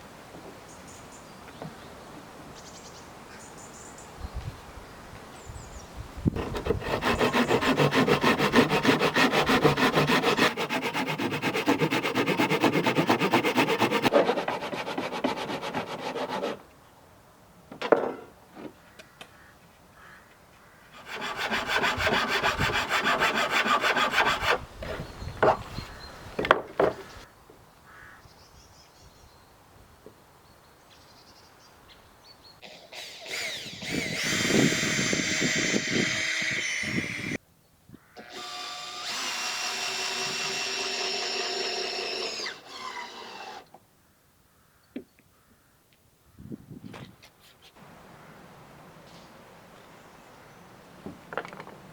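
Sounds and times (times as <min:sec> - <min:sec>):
saw cutting wood: 0:06.4 - 0:16.6, 0:20.9 - 0:24.6, 0:32.6 - 0:37.4, 0:38.2 - 0:43.7
cordless drill whining: 0:32.6 - 0:37.4, 0:38.2 - 0:43.7.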